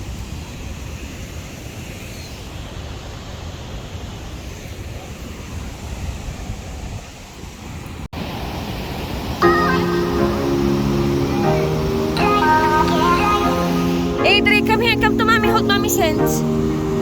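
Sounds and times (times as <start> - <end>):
wind buffeting microphone: 2.6 - 9.4.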